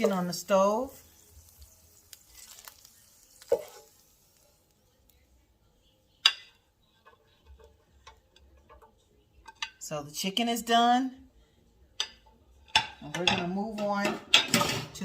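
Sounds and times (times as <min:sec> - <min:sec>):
drippings sizzling in a skillet: 0:00.0 - 0:05.4.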